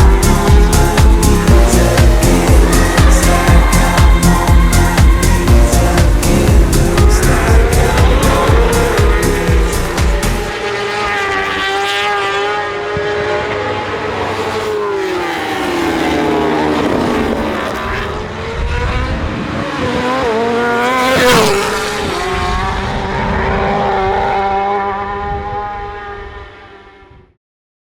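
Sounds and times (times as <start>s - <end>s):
motorcycle engine at high revs: 0.0s - 27.1s.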